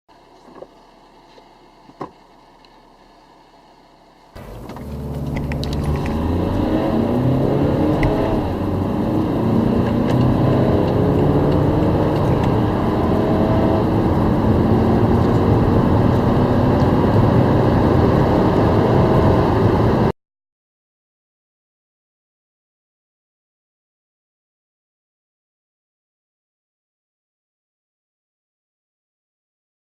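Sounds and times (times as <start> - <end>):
diesel car engine accelerating: 0.4 - 20.1.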